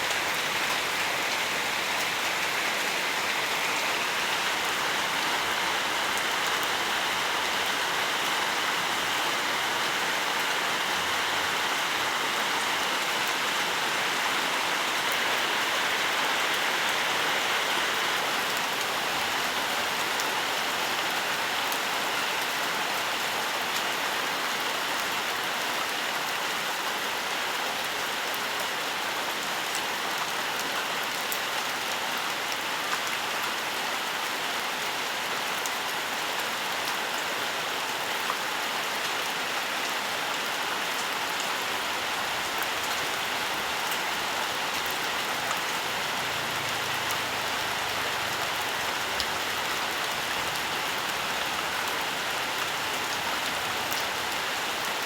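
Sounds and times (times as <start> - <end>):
gentle rain: 0.0 - 55.0.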